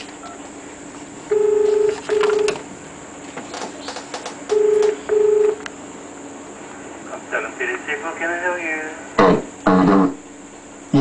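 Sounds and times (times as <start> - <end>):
telephone ringing tone: 1.3 - 2.6, 4.5 - 5.6.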